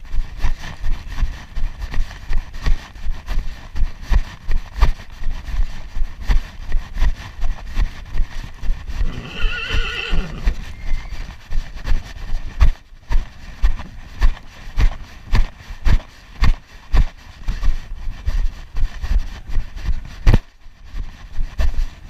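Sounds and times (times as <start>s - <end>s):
hoofbeats: 0.1s - 22.0s
horse whinnying: 9.0s - 11.2s.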